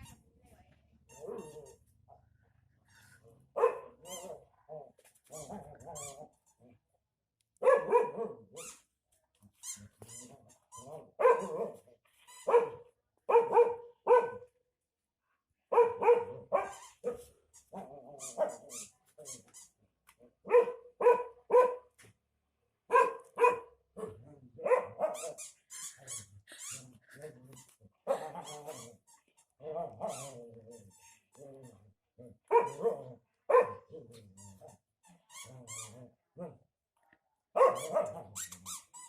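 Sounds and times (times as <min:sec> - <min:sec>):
dog barking angrily: 0:03.5 - 0:04.4, 0:07.6 - 0:08.5, 0:11.0 - 0:11.8, 0:12.4 - 0:14.5, 0:15.7 - 0:17.2, 0:20.4 - 0:21.9, 0:22.9 - 0:25.4, 0:28.0 - 0:28.6, 0:32.4 - 0:34.2, 0:37.6 - 0:38.3.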